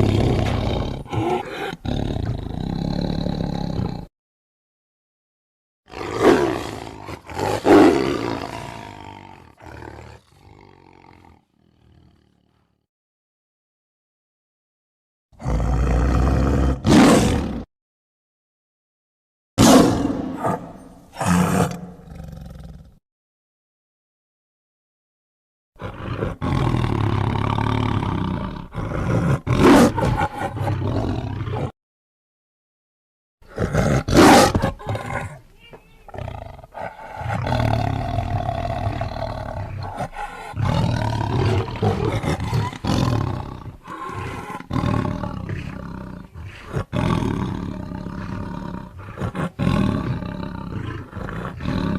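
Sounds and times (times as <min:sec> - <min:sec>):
tiger roaring: 0:00.0 - 0:04.1, 0:05.9 - 0:12.6, 0:15.4 - 0:17.7, 0:19.6 - 0:23.0, 0:25.8 - 0:31.7, 0:33.4 - 0:35.4, 0:36.1 - 0:51.9.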